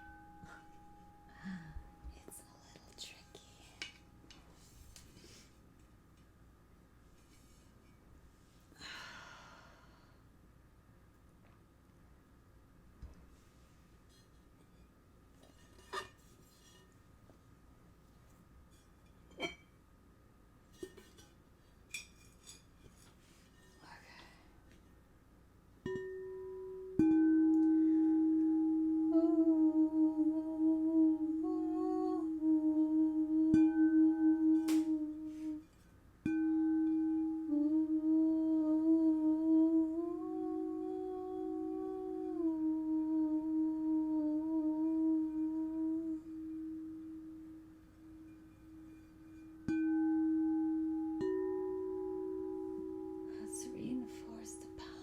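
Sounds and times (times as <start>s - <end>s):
singing bowls ringing: 0.0s - 4.4s, 25.9s - 55.0s
person humming: 1.2s - 3.4s, 27.5s - 35.7s, 36.5s - 47.6s.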